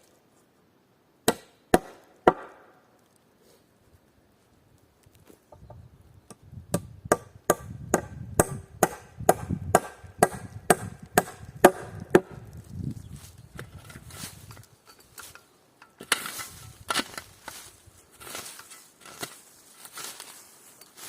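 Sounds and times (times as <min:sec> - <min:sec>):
hammer striking nail into wood: 0:06.7 - 0:12.3.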